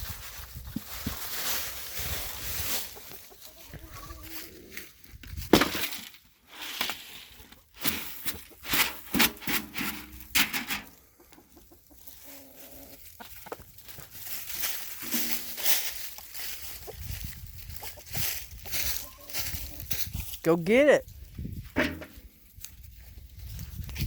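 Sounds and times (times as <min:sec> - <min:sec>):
chickens clucking: 0:02.3 - 0:05.0, 0:07.4 - 0:09.1, 0:09.9 - 0:20.2
sharp rustles and knocks: 0:07.8 - 0:11.0, 0:14.0 - 0:16.4, 0:21.6 - 0:22.6.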